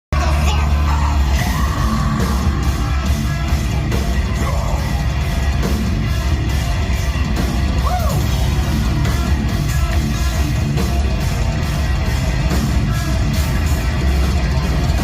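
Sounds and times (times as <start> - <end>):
singer yelling: 0.1 - 6.4, 7.7 - 10.6
heavy metal band playing: 0.1 - 15.0.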